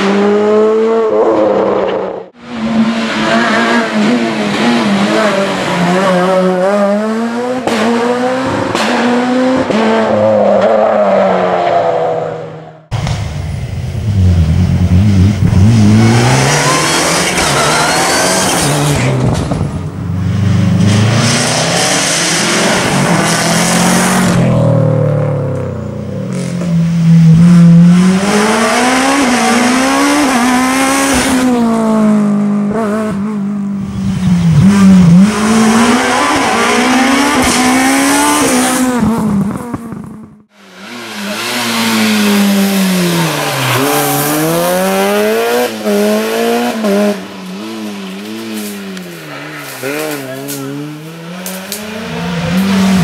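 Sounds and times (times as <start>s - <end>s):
rally car engines revving: 0.0s - 53.0s.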